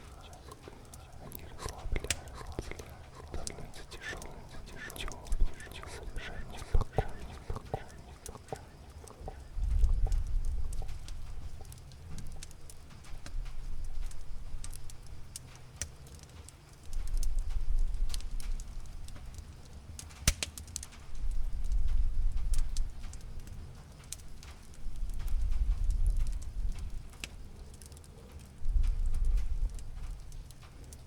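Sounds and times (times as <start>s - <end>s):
cat purring: 0.0s - 12.8s
campfire pops and crackles: 0.0s - 31.0s.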